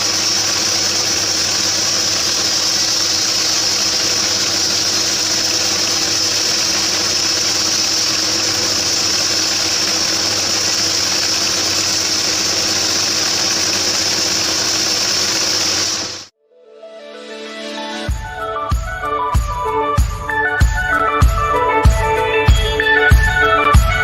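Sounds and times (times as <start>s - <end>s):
band sawmill humming and hissing: 0.0s - 16.3s.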